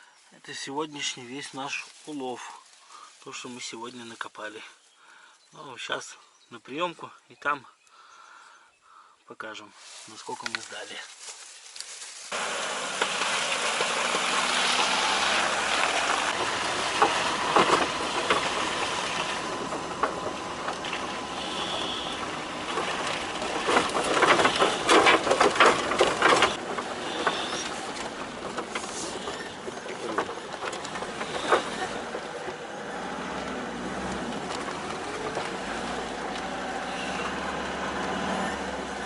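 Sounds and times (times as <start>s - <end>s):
car engine and tyres rumbling: 11.2s - 39.0s.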